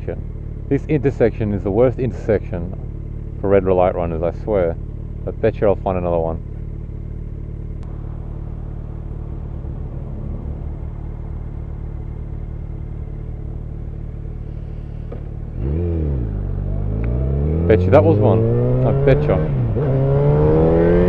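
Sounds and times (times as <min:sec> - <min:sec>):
motorcycle engine running and revving: 0:00.0 - 0:21.0.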